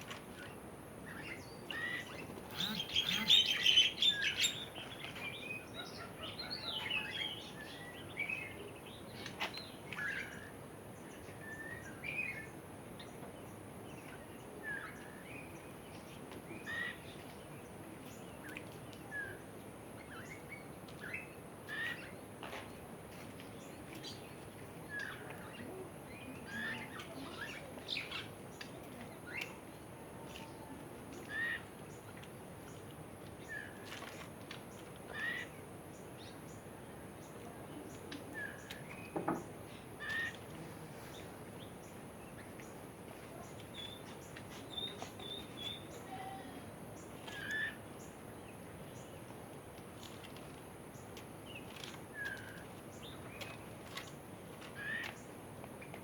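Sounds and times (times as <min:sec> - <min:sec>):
birds chirping and calling: 0:01.2 - 0:04.8
falling bird call: 0:02.5 - 0:04.2.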